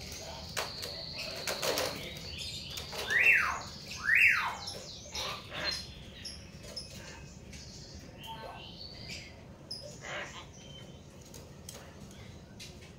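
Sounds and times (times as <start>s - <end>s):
soft bird clicks and chatter: 0.0s - 3.7s, 11.0s - 12.9s.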